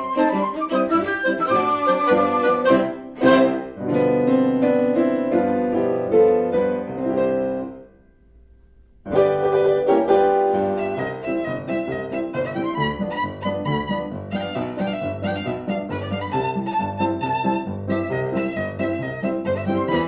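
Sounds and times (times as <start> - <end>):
violin and piano music: 0.0 - 7.7, 9.1 - 20.0.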